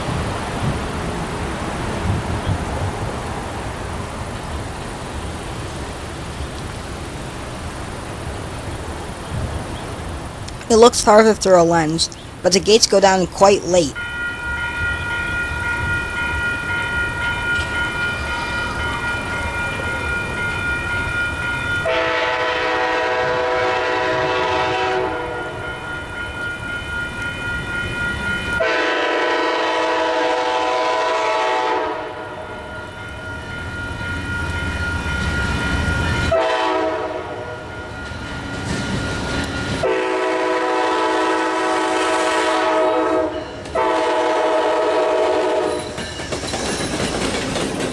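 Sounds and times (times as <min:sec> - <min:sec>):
locomotive horn blasts: 0:21.8 - 0:25.7, 0:28.6 - 0:32.5, 0:36.3 - 0:37.6, 0:39.8 - 0:45.7
high-pitched ringing tone: 0:32.5 - 0:36.4.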